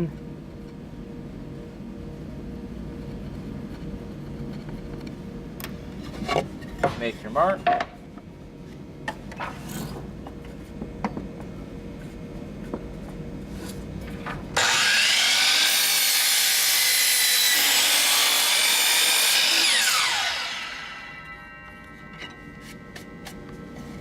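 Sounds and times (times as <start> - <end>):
power miter saw cutting wood: 14.6 - 23.3.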